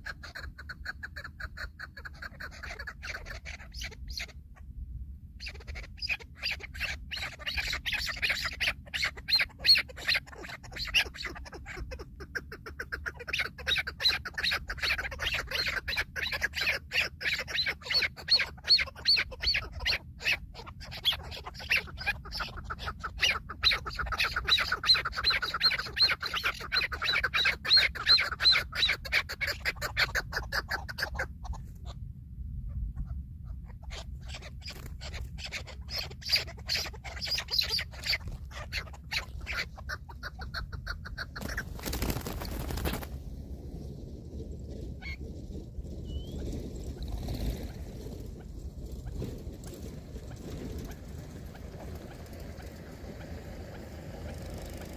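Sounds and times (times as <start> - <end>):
low steady rumble: 0.0 - 54.9
partridge clucking call: 5.4 - 31.9, 33.0 - 43.0.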